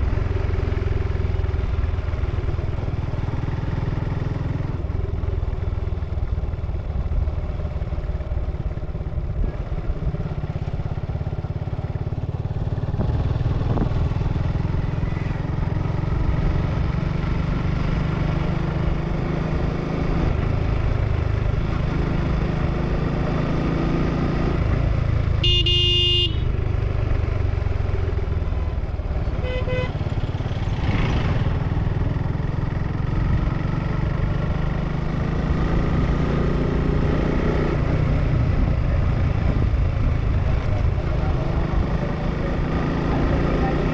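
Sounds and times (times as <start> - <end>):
motorcycle engine running: 0.0 - 43.9
vehicle horn: 25.4 - 26.6, 29.4 - 30.0.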